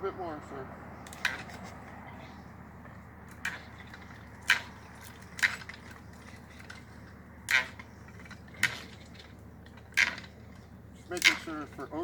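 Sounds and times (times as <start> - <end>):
wrenches clanking on steel pipe: 3.4 - 12.0.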